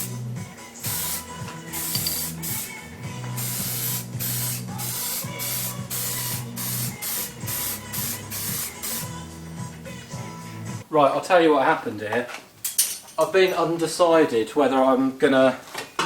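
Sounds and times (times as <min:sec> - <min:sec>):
spray can hissing: 0:00.8 - 0:09.1.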